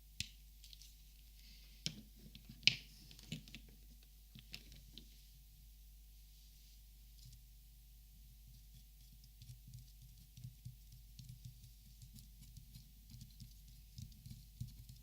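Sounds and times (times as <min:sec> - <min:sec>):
light tapping and scratching: 0:08.4 - 0:15.0.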